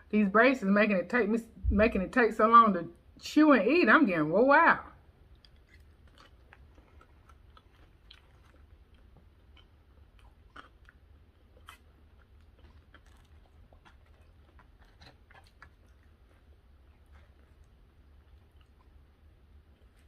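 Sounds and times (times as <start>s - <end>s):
chewing food: 5.0s - 20.0s.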